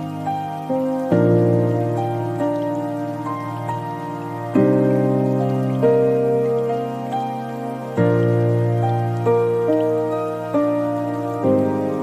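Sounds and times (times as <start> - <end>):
faint rain hiss: 0.0 - 12.0
soft solo piano: 0.0 - 12.0.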